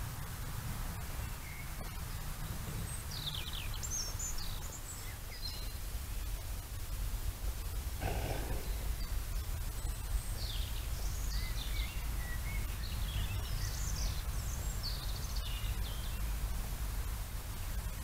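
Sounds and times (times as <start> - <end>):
low background rumble: 0.0 - 18.0
small songbird chirping: 0.8 - 18.0.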